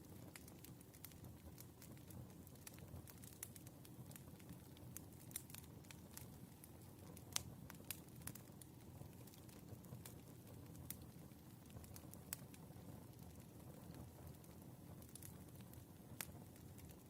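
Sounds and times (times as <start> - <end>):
low fire rumble: 0.0 - 17.0
wood fire crackling: 0.0 - 17.0.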